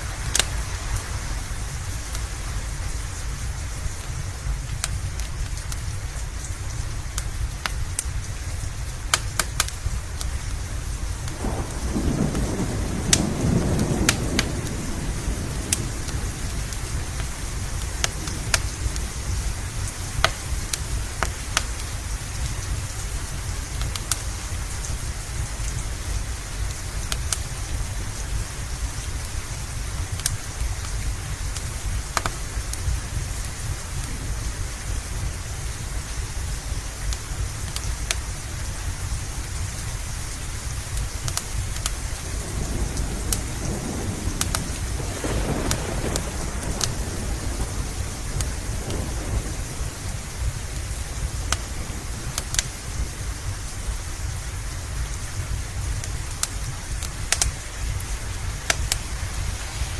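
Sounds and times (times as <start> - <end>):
steady rain: 0.0 - 59.9
wood fire crackling: 0.0 - 59.9
thunder rolling: 11.0 - 21.5, 41.6 - 54.4.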